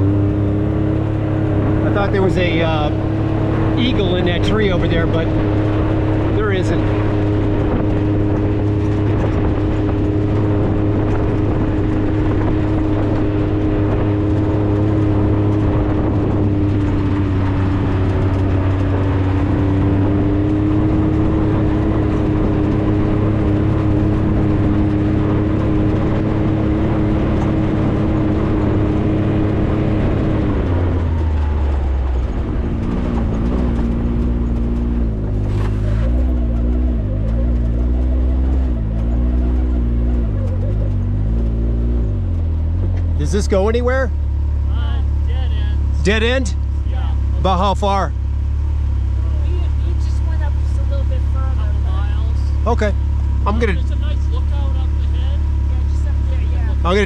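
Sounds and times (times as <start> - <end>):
vehicle engine droning: 0.0 - 57.0.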